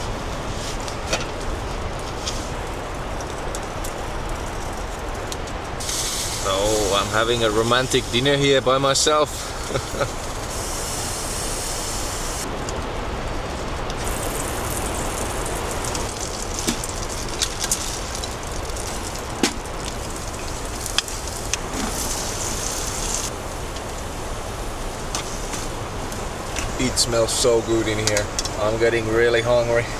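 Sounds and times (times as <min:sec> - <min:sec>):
low wind rumble: 0:00.0 - 0:29.9
potatoes sizzling in a pan: 0:05.8 - 0:12.4, 0:14.0 - 0:26.8.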